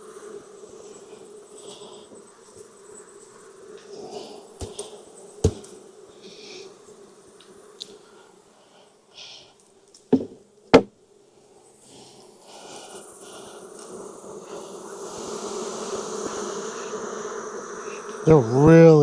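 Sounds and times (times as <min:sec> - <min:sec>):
honeybees buzzing: 0:00.0 - 0:08.4, 0:11.7 - 0:19.0
sharp knocks: 0:10.1 - 0:10.9.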